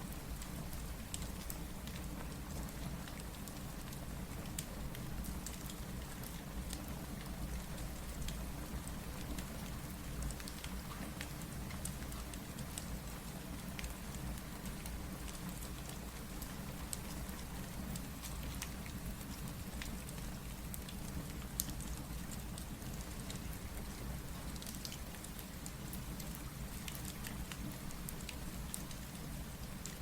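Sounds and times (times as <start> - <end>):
steady rain: 0.0 - 30.0
fireplace crackles and pops: 10.2 - 30.0.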